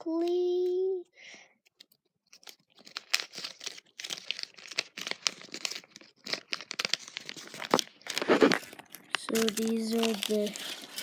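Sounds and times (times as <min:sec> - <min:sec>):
paper crinkling and rustling: 0:01.7 - 0:11.0.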